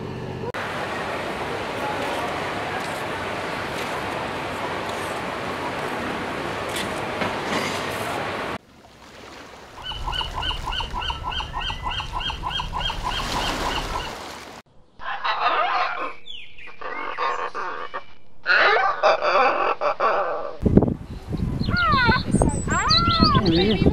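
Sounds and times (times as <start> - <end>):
aerated water rushing: 0.6 - 14.6
gull yelping calls: 9.8 - 14.1
macaw squawking: 9.8 - 14.1.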